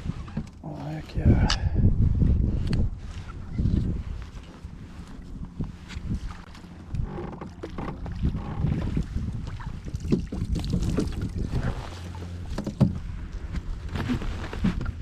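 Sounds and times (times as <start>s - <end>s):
knocks and rattles on kayak hull: 0.0s - 0.6s, 5.7s - 15.0s
wind rumble on microphone: 0.0s - 15.0s.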